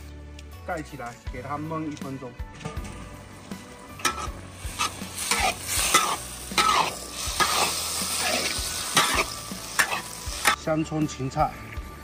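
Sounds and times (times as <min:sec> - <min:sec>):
spatula scraping in a wok: 0:03.9 - 0:10.6.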